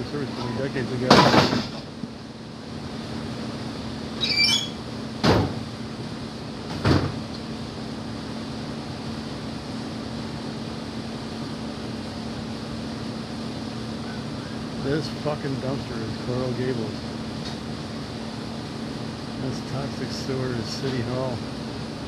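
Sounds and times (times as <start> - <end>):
machine hum: 0.0 - 22.0
short high squeal: 4.2 - 4.8.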